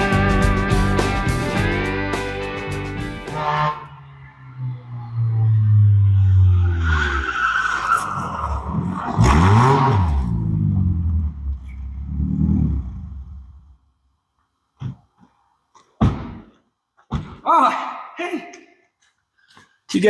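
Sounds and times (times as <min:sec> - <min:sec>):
car engine: 0:00.0 - 0:13.9.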